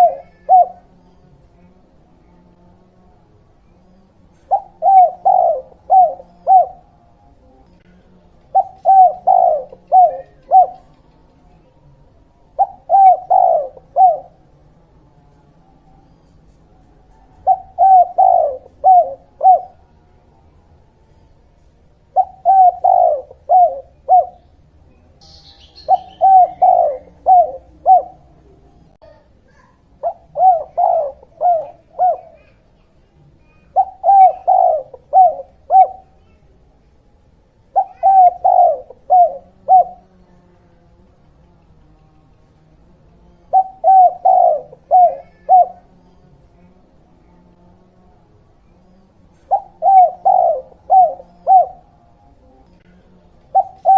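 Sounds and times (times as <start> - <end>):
dove cooing: 0.0 - 1.3, 3.6 - 14.7, 15.7 - 40.3, 43.3 - 47.8, 48.6 - 53.9
faint high bird chirp: 3.6 - 14.4, 15.7 - 19.8, 21.0 - 36.5, 37.7 - 40.4, 48.6 - 51.9.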